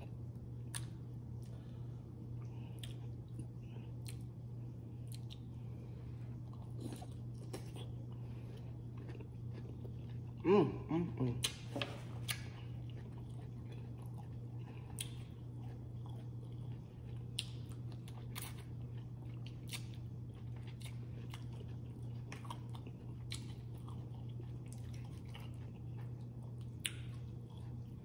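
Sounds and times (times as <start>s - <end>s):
steady low hum: 0.0s - 28.0s
chewing and biting food: 2.3s - 5.7s, 6.3s - 10.4s, 11.4s - 28.0s
mouth crunches and clicks: 11.4s - 27.7s.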